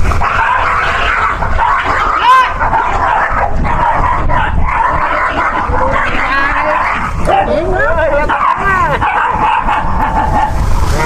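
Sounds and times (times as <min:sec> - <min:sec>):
dogs barking and yelping: 0:00.0 - 0:11.0.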